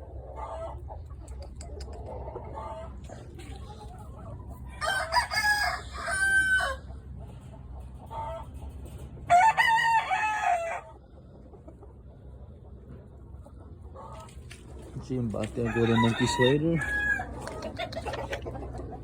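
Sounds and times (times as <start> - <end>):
rooster crowing: 4.7 - 6.9, 9.3 - 10.9, 15.6 - 17.4.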